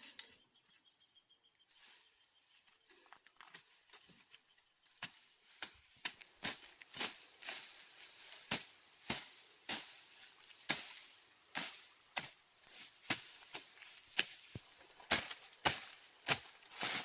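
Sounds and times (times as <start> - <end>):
hand tool striking hard material: 14.2 - 17.0.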